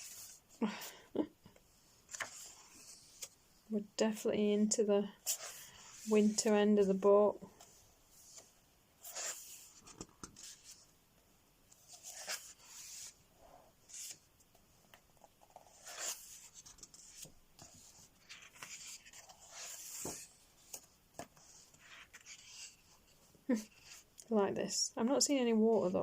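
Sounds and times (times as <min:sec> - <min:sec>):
thick paper pages turning: 0:02.0 - 0:03.4, 0:08.2 - 0:10.8, 0:11.8 - 0:13.2, 0:13.9 - 0:14.3, 0:15.2 - 0:24.1.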